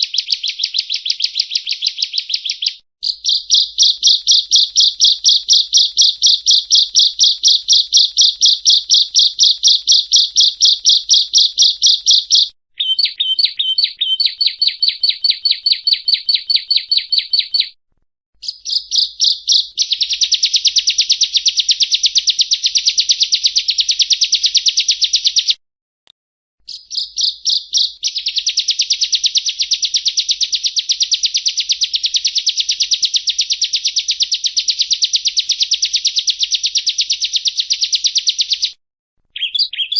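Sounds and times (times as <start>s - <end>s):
bird singing high buzzy notes: 0.3s - 17.1s.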